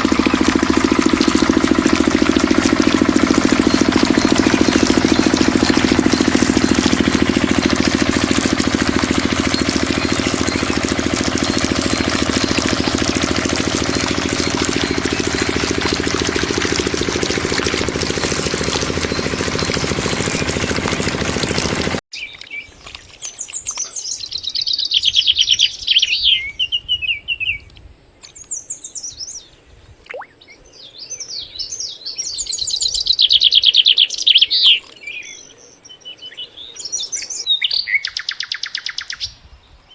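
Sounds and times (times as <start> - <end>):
diesel water pump engine clatter: 0.0 - 22.0
birds chirping trills: 0.0 - 26.9, 30.2 - 39.9.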